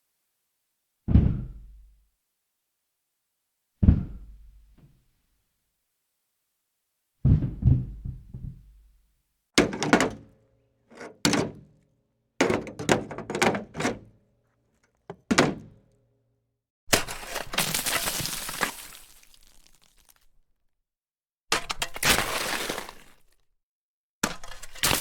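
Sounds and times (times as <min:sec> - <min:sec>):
heavy low thud: 0:01.1 - 0:01.8, 0:03.8 - 0:04.6, 0:07.2 - 0:08.8.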